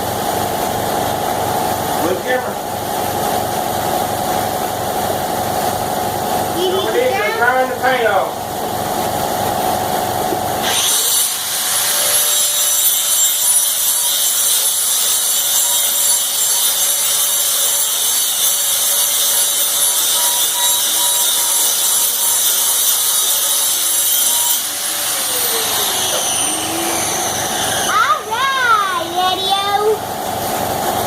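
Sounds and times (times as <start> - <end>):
electric grinder whining: 10.2 - 28.6.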